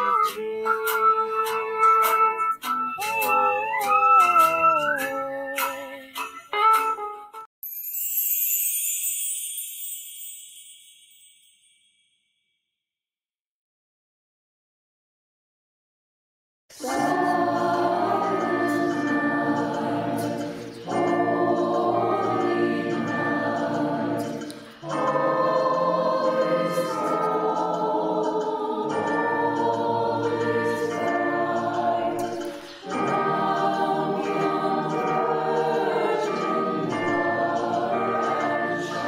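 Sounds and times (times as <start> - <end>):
choir singing a carol: 0.0 - 2.0, 16.7 - 39.0.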